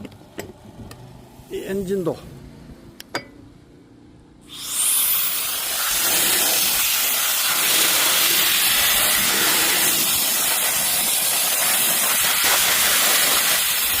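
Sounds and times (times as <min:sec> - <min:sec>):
air blower rushing hiss: 0:04.4 - 0:14.0.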